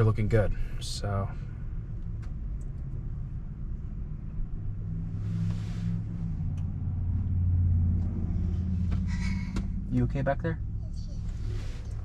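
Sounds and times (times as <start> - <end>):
road and tyre rumble in car: 0.0 - 12.0.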